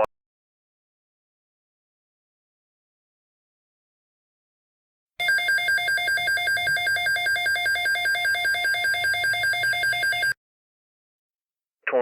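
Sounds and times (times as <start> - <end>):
rapidly pulsing electronic beep: 5.2 - 10.4.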